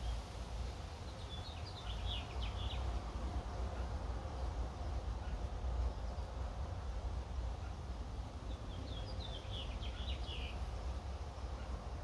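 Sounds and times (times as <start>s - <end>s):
bird chirping: 8.5s - 10.6s.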